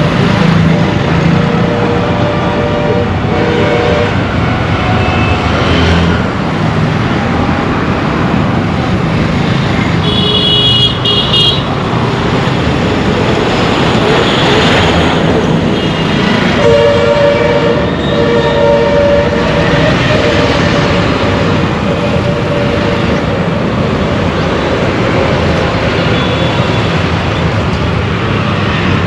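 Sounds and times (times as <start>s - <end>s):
road traffic engines: 0.0s - 29.0s
car horns honking: 1.4s - 6.0s, 10.0s - 11.7s, 15.7s - 23.5s.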